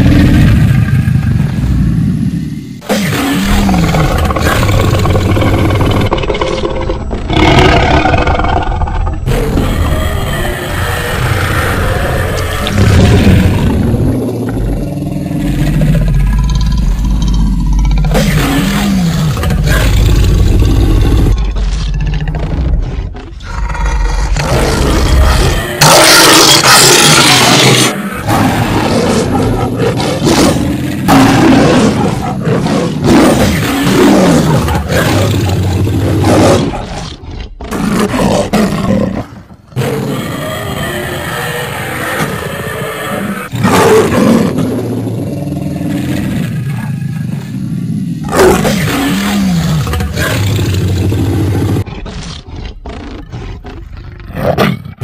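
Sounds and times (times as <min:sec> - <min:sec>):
cartoon lion roaring: 0:00.0 - 0:55.0.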